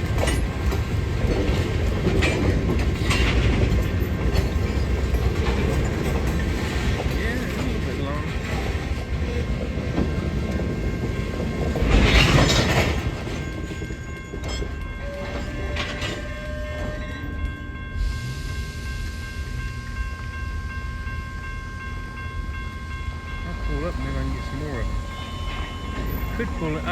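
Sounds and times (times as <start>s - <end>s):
train rumbling on rails: 0.0s - 26.9s.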